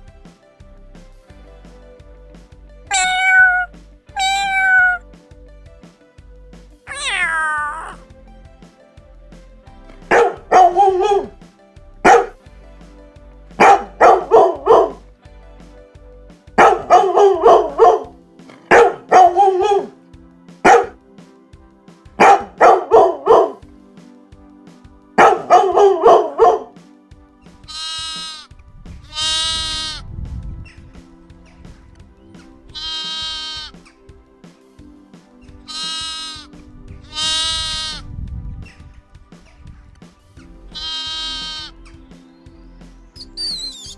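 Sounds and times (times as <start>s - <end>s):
faint music: 0.0s - 43.9s
dog barking: 12.1s - 12.3s, 18.7s - 19.9s, 20.7s - 20.9s
long bleats: 40.8s - 41.7s.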